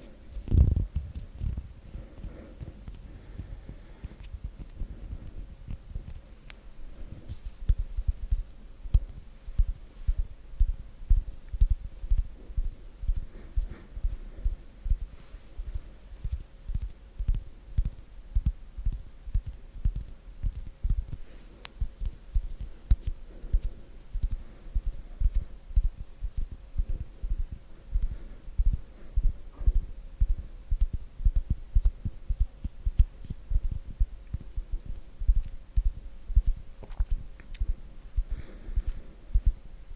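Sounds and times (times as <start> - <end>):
hands rubbing on microphone: 0.0 - 3.1, 7.0 - 8.6
faint steady hum: 0.0 - 39.9
dry skin clicks: 16.2 - 26.0.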